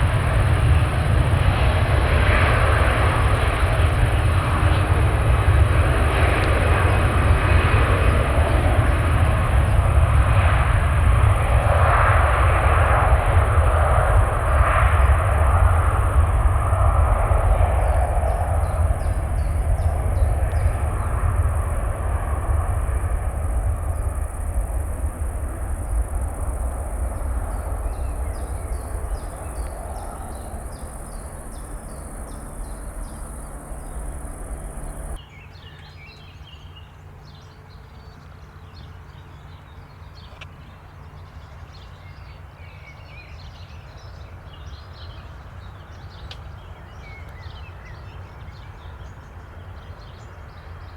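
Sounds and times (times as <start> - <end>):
jet engine rumble: 0.0 - 35.2
birds chirping: 14.0 - 35.2.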